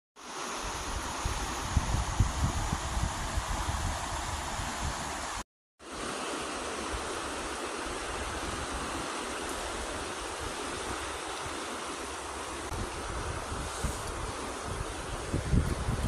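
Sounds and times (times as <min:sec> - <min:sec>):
creek water rushing: 0:00.2 - 0:16.0.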